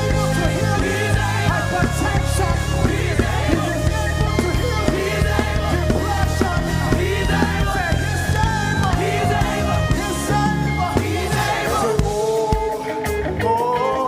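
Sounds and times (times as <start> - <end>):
drum hits: 0.0 - 10.3
live band playing: 0.0 - 14.0.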